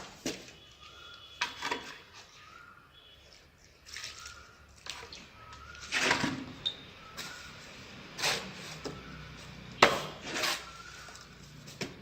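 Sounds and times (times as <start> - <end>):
tools scraping tile: 10.2 - 10.8.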